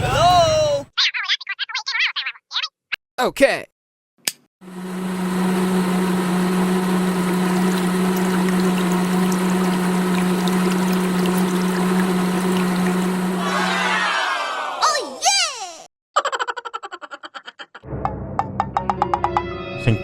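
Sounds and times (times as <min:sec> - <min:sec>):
electric water pump humming: 0:04.6 - 0:14.7
water pouring and splashing: 0:06.8 - 0:13.4.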